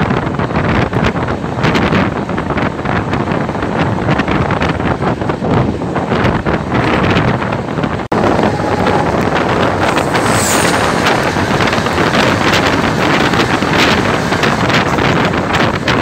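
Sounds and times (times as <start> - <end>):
wind buffeting microphone: 0.0 - 16.0
train wheels clattering over rails: 8.2 - 16.0.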